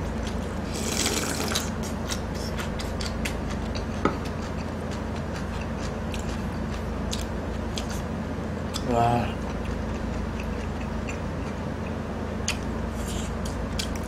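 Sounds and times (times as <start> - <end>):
chewing with wet mouth clicks: 1.1 - 8.0, 8.7 - 14.0.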